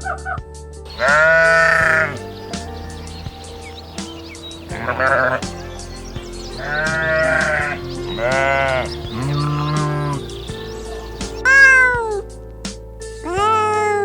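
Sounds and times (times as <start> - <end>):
farm animal bleating: 1.0 - 2.2, 4.7 - 5.5, 6.6 - 10.3.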